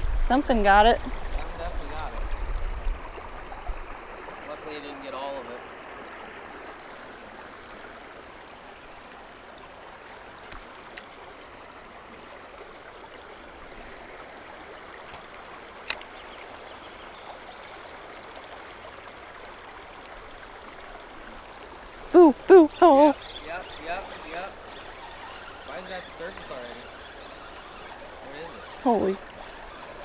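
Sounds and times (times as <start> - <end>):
river current rushing: 0.0 - 30.0
faint tick: 19.4 - 20.2.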